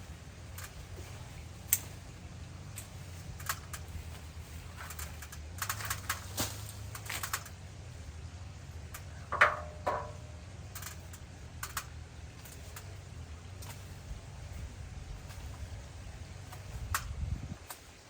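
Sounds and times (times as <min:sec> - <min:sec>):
steady low hum: 0:00.0 - 0:18.0
light clicks and snaps: 0:01.6 - 0:02.0, 0:10.7 - 0:12.9.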